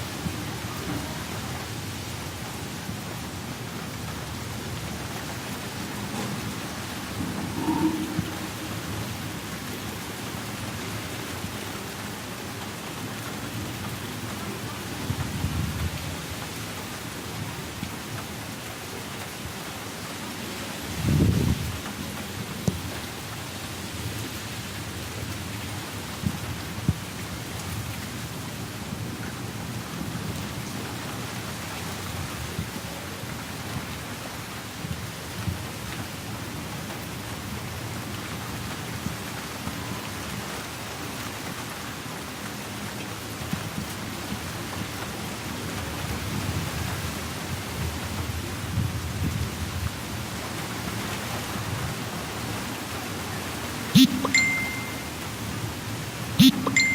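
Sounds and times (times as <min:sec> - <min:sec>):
steady rain: 0:00.0 - 0:56.9
thunder rumble: 0:04.6 - 0:10.4.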